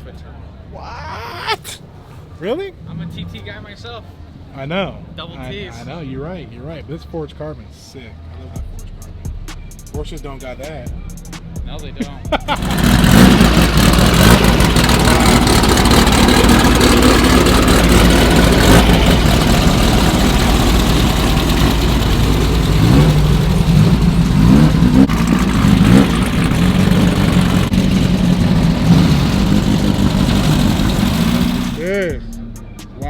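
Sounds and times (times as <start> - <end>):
car engine idling: 8.0 - 33.0
car engine revving: 8.2 - 32.8.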